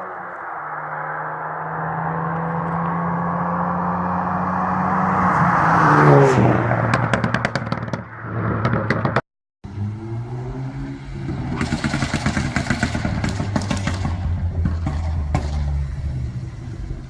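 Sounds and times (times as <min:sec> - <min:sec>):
car engine revving: 0:00.0 - 0:17.0
exhaust pops and crackles: 0:06.8 - 0:09.2, 0:11.3 - 0:17.0.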